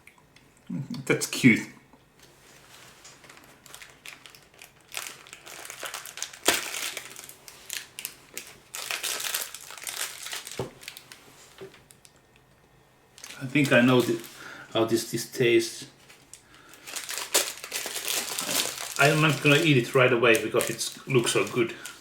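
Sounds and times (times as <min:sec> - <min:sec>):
packaging crinkling: 0:02.5 - 0:12.2, 0:13.1 - 0:14.6, 0:16.0 - 0:22.0.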